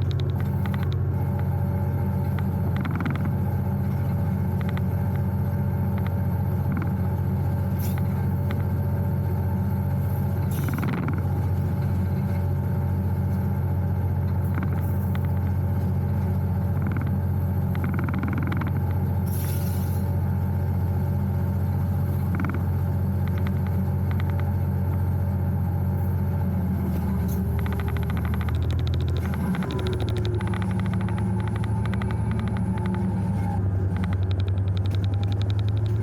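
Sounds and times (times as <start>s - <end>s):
diesel locomotive engine drone: 0.0s - 36.0s.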